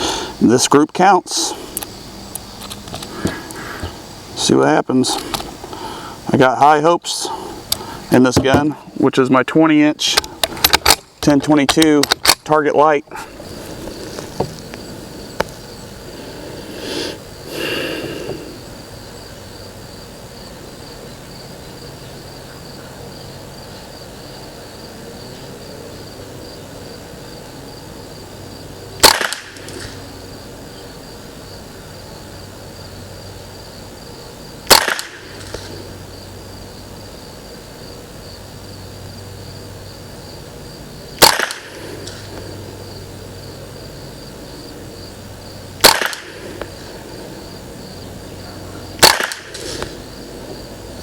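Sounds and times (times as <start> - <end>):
rifle shots with echo: 29.0 - 29.8, 34.7 - 35.4, 41.2 - 42.2, 45.8 - 46.5, 49.0 - 49.8.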